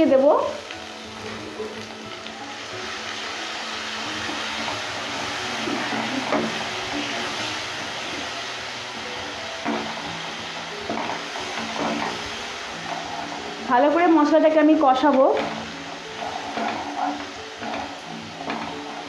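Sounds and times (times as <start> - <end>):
paste sizzling in hot oil: 0.0 - 19.0
spatula scraping pan: 3.4 - 19.0.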